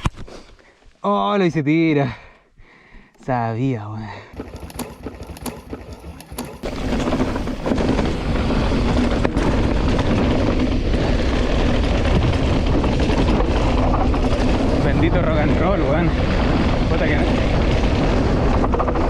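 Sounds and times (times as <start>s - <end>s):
scattered clicks: 4.4s - 7.3s
bike rattling over rocky ground: 4.4s - 19.0s.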